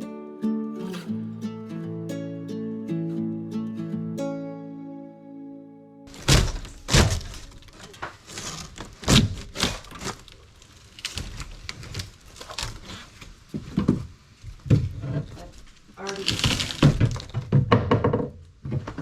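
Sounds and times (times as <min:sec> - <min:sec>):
wooden panelling thuds and cracks: 0:06.1 - 0:19.0.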